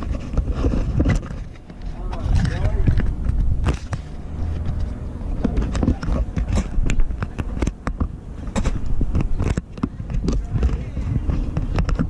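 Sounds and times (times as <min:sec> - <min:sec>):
steady low rumble: 0:00.0 - 0:12.0
irregular knocks and clicks: 0:02.8 - 0:12.0.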